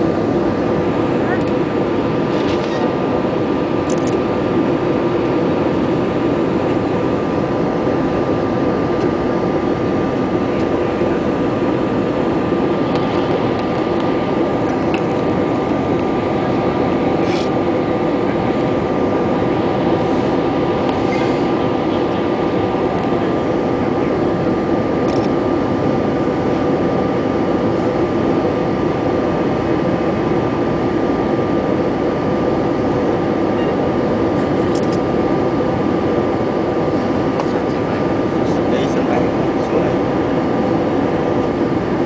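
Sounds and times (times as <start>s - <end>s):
airliner cabin engine noise: 0.0s - 42.0s
thin steady whine: 0.0s - 42.0s.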